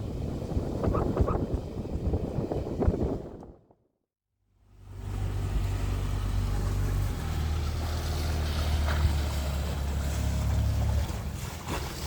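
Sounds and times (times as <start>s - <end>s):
water noise: 0.0s - 3.6s, 4.8s - 12.0s
wind noise: 0.0s - 3.8s
small boat motor rumbling: 4.6s - 12.0s.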